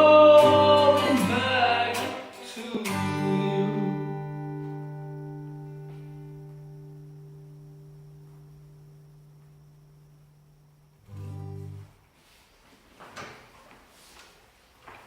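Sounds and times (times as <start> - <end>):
acoustic guitar chord ringing: 0.0 - 12.0
low guitar note: 2.8 - 11.9.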